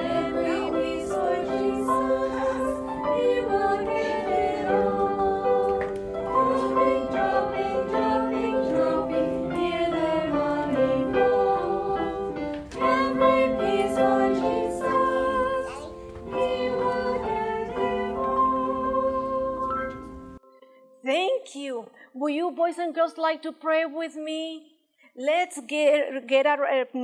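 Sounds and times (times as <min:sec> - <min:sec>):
voices singing a song: 0:00.0 - 0:20.0
instrumental accompaniment: 0:00.0 - 0:21.0.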